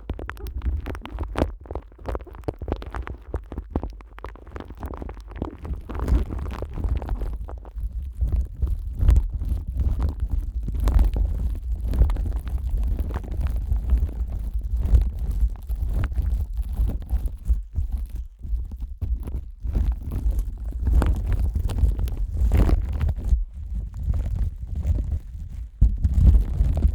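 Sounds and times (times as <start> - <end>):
deep muffled handling rumble: 6.7 - 26.9.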